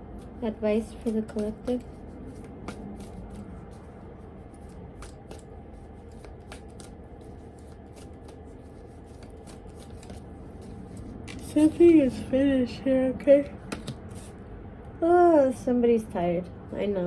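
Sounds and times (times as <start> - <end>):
low steady hum: 0.0 - 17.0
cards being shuffled by hand: 0.1 - 12.5, 13.4 - 14.4.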